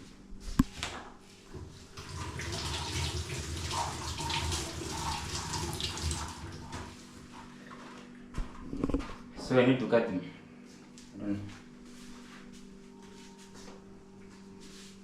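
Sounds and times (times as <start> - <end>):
water running from a tap: 2.0 - 7.0.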